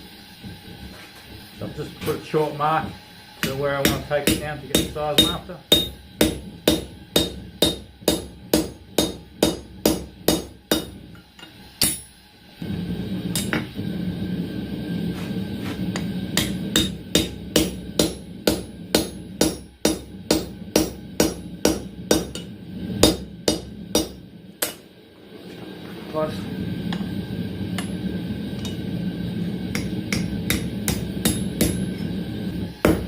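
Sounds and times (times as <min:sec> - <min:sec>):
hammer striking steel on anvil: 0:03.4 - 0:12.2, 0:13.3 - 0:13.7, 0:15.9 - 0:24.8, 0:27.8 - 0:28.0, 0:28.6 - 0:28.8, 0:29.7 - 0:32.1
low rushing noise: 0:21.9 - 0:32.8.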